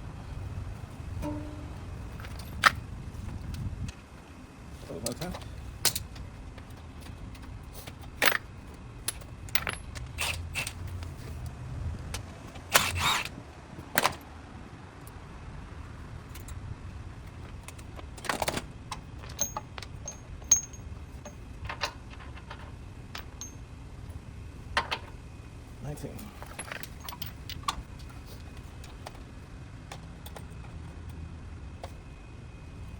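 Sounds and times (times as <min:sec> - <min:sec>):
metallic tool clinks and rattles: 0:01.2 - 0:02.8, 0:18.5 - 0:23.7, 0:26.2 - 0:27.8.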